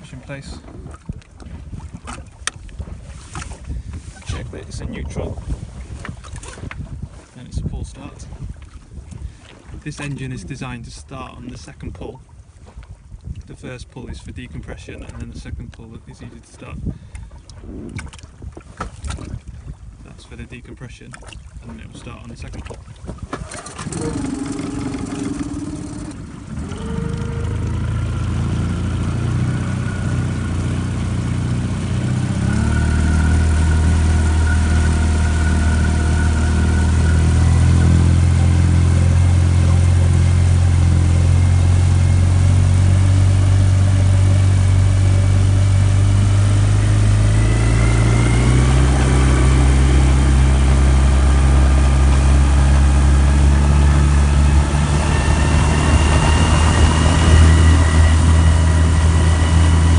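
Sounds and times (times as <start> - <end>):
outboard motor idling: 0.0 - 11.4, 21.4 - 59.9.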